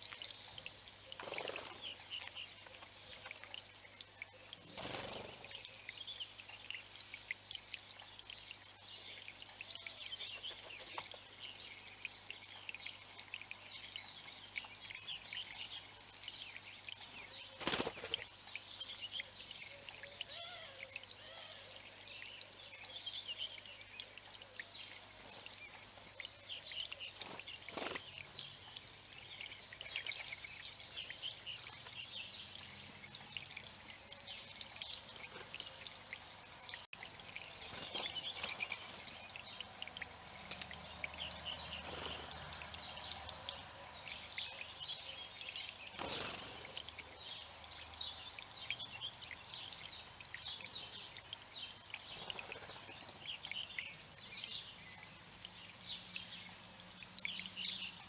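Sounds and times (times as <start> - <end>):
small birds chirping and trilling: 0.0 - 58.0.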